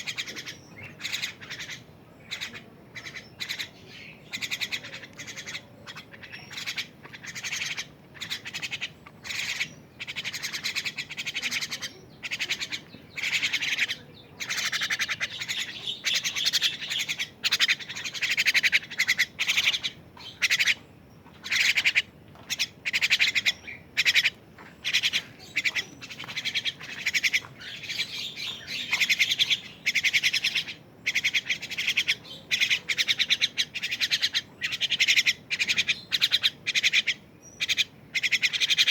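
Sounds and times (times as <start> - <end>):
chicks giving raspy begging calls: 0.0 - 38.9.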